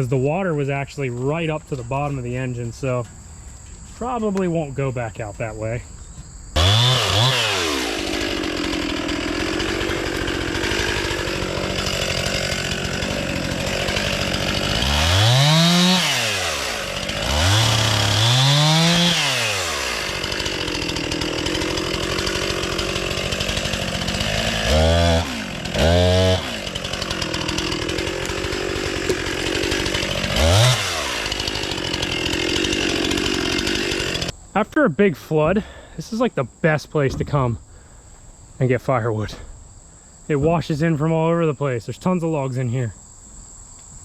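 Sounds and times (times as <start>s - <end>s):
chainsaw idling and revving: 6.6s - 34.4s.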